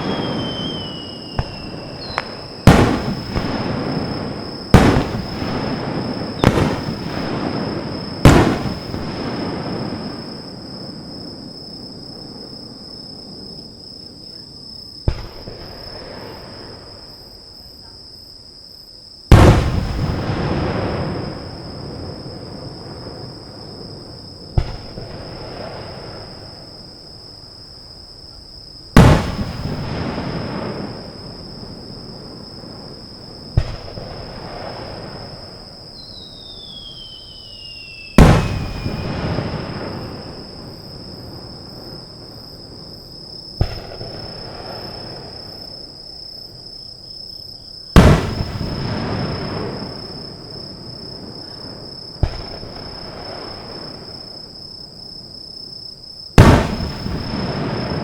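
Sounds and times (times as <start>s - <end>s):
small firework cracks: 0.0s - 11.1s, 15.0s - 16.9s, 19.3s - 21.5s, 24.5s - 26.7s, 29.0s - 31.1s, 33.4s - 41.4s, 43.6s - 45.7s, 47.9s - 50.3s, 51.6s - 54.3s, 56.4s - 58.0s
firework shells booming: 0.0s - 12.7s, 15.0s - 17.1s, 19.3s - 26.7s, 28.9s - 45.8s, 47.9s - 54.3s, 56.4s - 58.0s
insects trilling: 0.0s - 58.0s.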